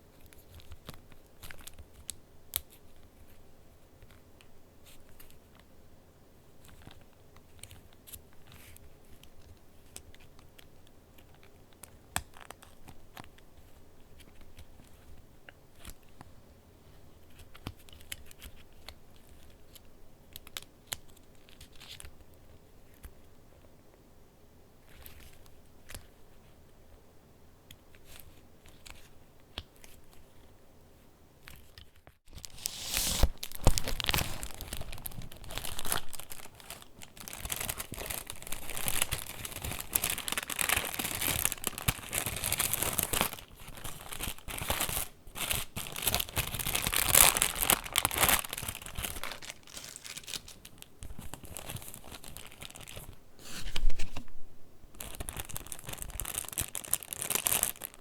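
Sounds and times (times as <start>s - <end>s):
paper pages rustling and crinkling: 31.6s - 54.4s, 55.0s - 58.0s.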